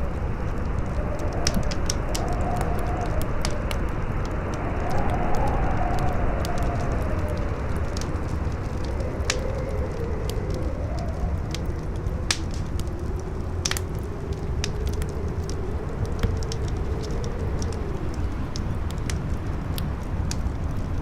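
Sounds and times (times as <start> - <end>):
fire crackling and popping: 0.0 - 21.0
wind howling: 0.0 - 21.0.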